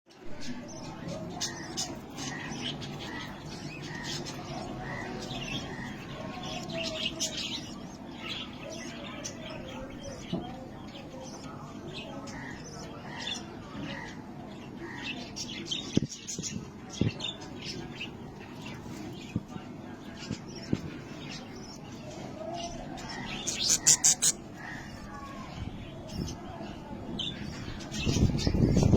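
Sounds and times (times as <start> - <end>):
budgerigar chirping and chattering: 23.2 - 24.5.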